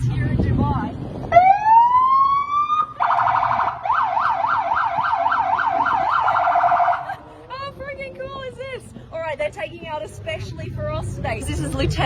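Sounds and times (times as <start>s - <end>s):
electronic siren wailing and yelping: 1.4s - 7.1s.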